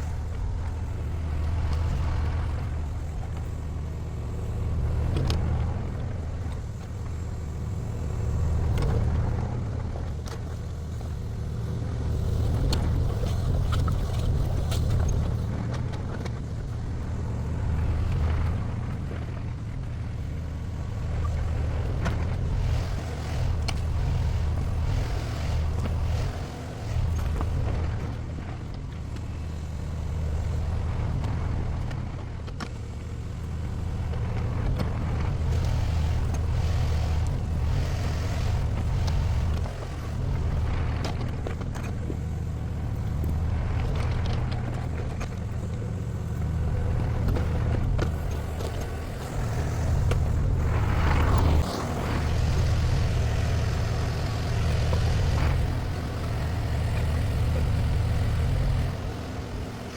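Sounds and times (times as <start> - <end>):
excavator diesel engine: 0.0 - 59.9.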